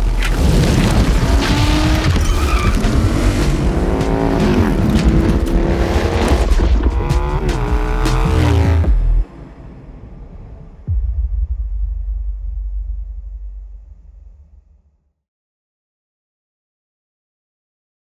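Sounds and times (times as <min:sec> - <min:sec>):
motorcycle engine accelerating: 0:00.0 - 0:09.3.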